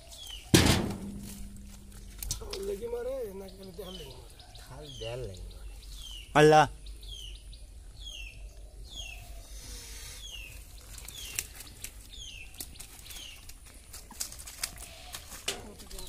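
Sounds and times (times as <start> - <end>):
clicks and rustling of fishing net: 10.7 - 16.0.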